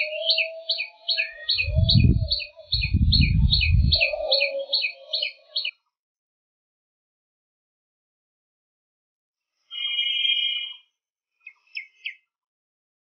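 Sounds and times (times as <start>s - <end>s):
low drawn-out bird call: 0.0s - 5.7s.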